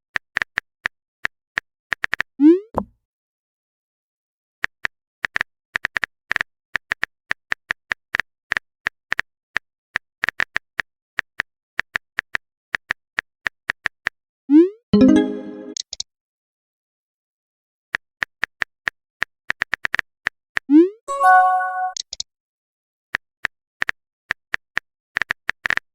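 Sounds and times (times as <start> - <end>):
notification tone: 14.6 - 15.8, 20.7 - 22.0.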